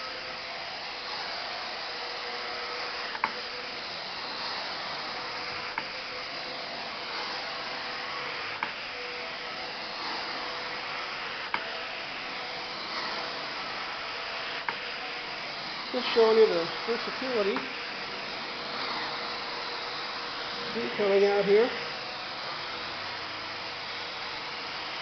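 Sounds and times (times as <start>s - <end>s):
rushing suction of cleaning wand: 0.0s - 25.0s.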